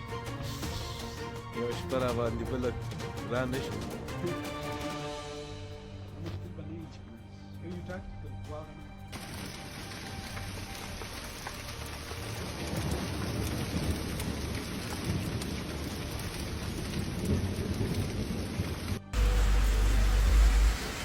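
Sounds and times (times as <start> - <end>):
rushing storm noise: 9.1 - 21.0.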